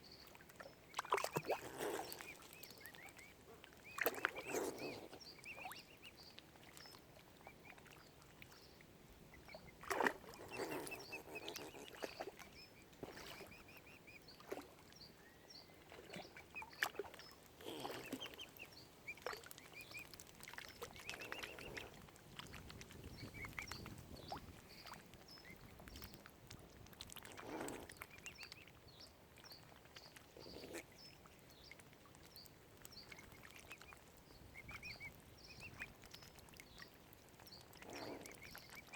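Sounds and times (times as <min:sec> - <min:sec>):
cygnets peeping: 0:00.1 - 0:07.8, 0:09.3 - 0:26.2, 0:32.4 - 0:38.9
waterfowl calls: 0:01.1 - 0:06.0, 0:17.6 - 0:20.1.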